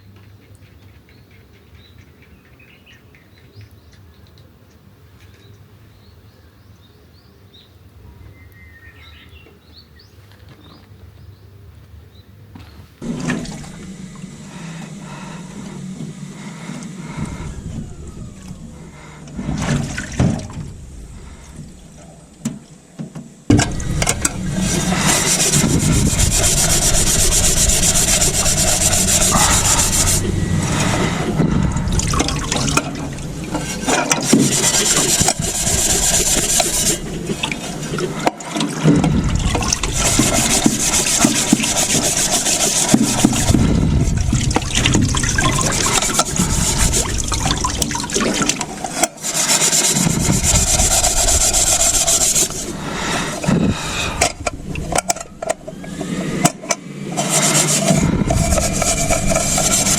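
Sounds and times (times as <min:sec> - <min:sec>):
birds chirping: 0:05.2 - 0:12.9
water running and splashing: 0:13.0 - 0:16.2, 0:17.0 - 0:22.4, 0:23.5 - 0:56.1.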